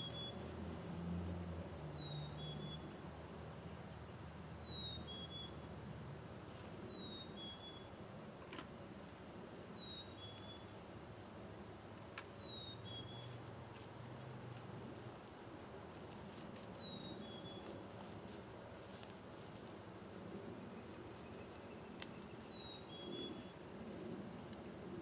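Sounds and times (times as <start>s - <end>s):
faint sharp clicks: 21.5s - 22.4s.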